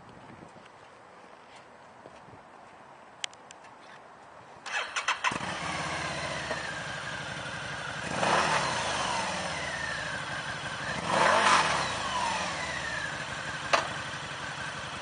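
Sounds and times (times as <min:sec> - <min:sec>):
motorcycle engine starting and revving: 0:04.6 - 0:15.0.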